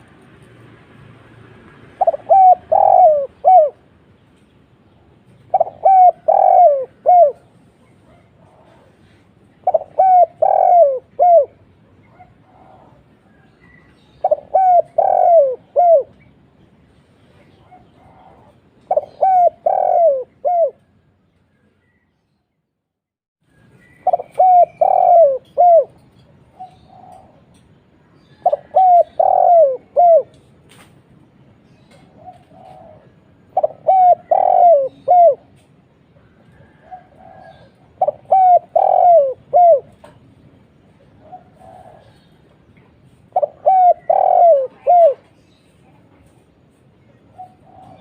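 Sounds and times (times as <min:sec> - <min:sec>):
dove cooing: 0:02.0 - 0:03.9, 0:05.4 - 0:16.2, 0:17.4 - 0:21.0, 0:24.0 - 0:27.6, 0:28.2 - 0:30.5, 0:31.9 - 0:45.4, 0:47.2 - 0:48.0.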